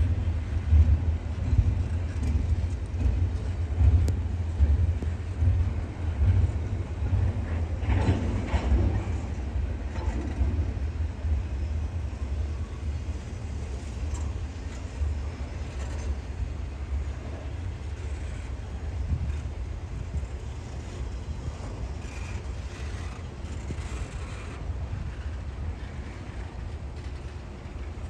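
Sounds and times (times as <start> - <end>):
freight train rumbling by: 0.0 - 28.0
wind buffeting microphone: 0.0 - 28.0.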